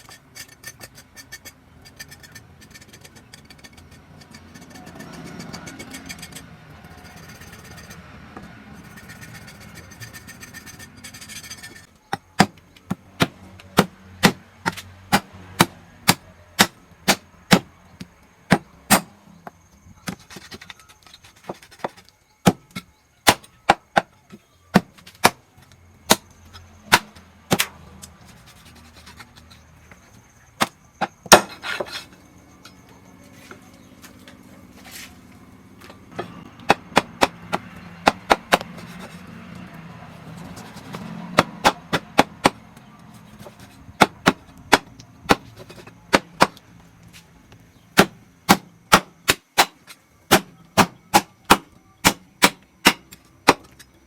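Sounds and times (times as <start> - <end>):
steady background noise: 0.0 - 54.0
knife chopping on wooden board: 12.1 - 17.7, 30.6 - 31.9, 36.2 - 39.2, 40.6 - 42.6, 48.0 - 53.7.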